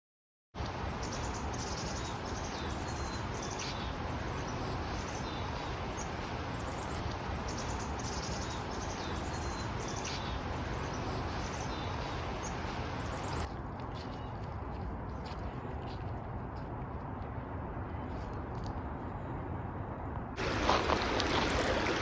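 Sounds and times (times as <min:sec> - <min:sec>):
small birds chirping: 0:00.6 - 0:14.5, 0:20.4 - 0:22.0
steady background hiss: 0:20.4 - 0:22.0.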